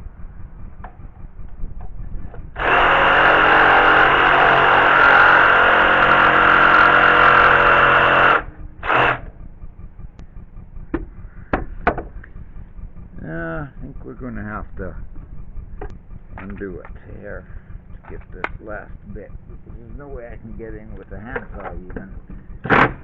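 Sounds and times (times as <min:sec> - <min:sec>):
power saw cutting wood: 0:02.6 - 0:09.3, 0:22.6 - 0:23.0
sharp knocks: 0:10.9 - 0:12.2.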